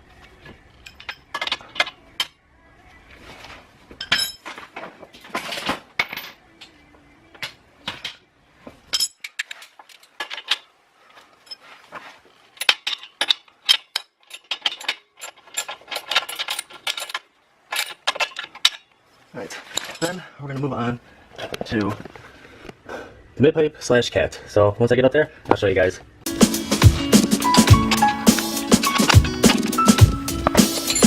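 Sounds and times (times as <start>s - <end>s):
wrench clinking on metal bolts: 0.8s - 2.3s, 4.0s - 4.5s, 8.9s - 10.7s, 12.6s - 18.9s, 28.9s - 31.0s.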